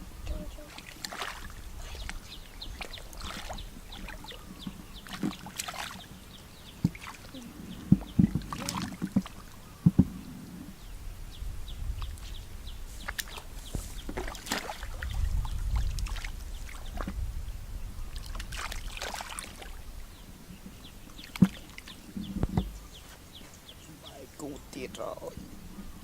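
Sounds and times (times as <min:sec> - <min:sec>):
water sloshing and splashing: 0:00.2 - 0:10.2, 0:13.0 - 0:17.3, 0:18.1 - 0:23.2.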